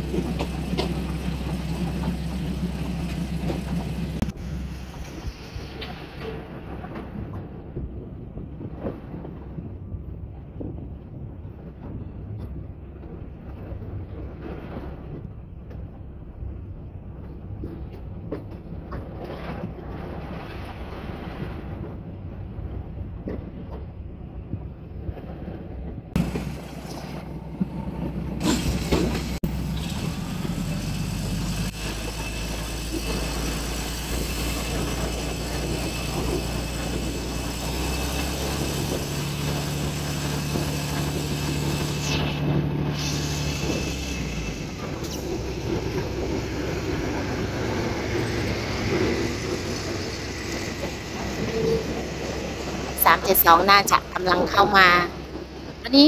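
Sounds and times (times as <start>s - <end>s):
wheels knocking over rail joints: 0.0s - 4.4s, 26.2s - 56.0s
train wheels rumbling on track: 0.0s - 56.0s.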